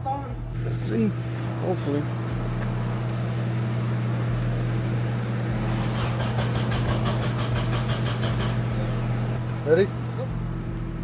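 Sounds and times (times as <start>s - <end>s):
steady low hum: 0.0s - 11.0s
car engine cranking on starter: 5.5s - 9.1s.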